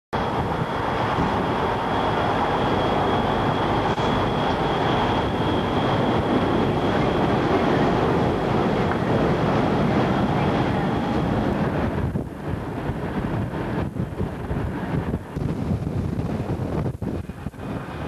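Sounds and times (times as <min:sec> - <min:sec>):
highway traffic: 0:00.1 - 0:18.0
thin high steady tone: 0:00.2 - 0:09.3
wind buffeting microphone: 0:00.2 - 0:18.0.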